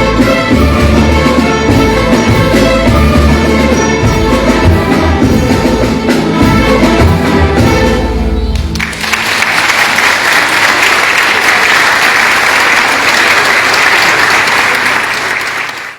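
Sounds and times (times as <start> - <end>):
audience applauding: 8.6 - 15.9.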